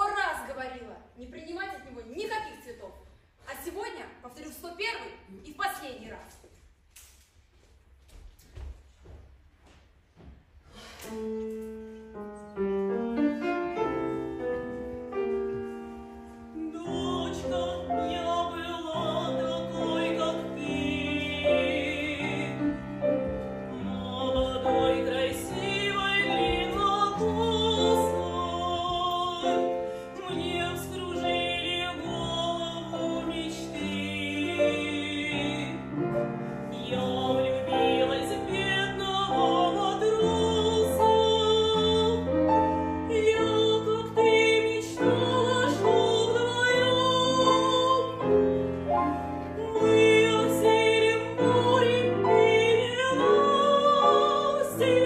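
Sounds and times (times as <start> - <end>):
piano accompaniment: 10.8 - 55.0
woman singing operatically: 16.6 - 22.8, 23.7 - 35.9, 36.8 - 42.2, 43.1 - 48.2, 49.6 - 55.0.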